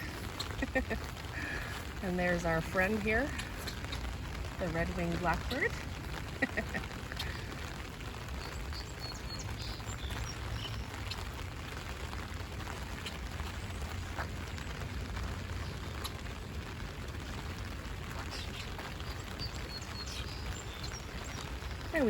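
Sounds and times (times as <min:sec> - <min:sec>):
high bird calls: 0:00.0 - 0:11.4, 0:18.0 - 0:22.0
rain pattering on an umbrella: 0:00.0 - 0:22.0.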